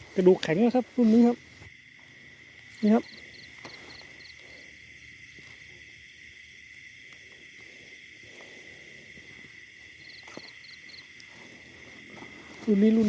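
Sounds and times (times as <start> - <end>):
soft rustles and ticks: 0.0 - 4.4
night insects droning: 0.0 - 13.0
pulsing insect chirp: 0.0 - 13.0.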